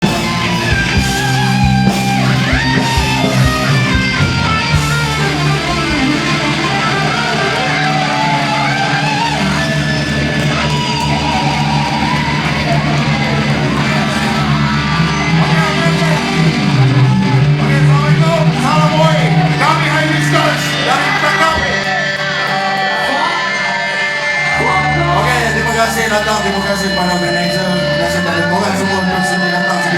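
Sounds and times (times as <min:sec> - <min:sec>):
drum hits: 0:00.0 - 0:06.8
live rock band playing: 0:00.0 - 0:29.9.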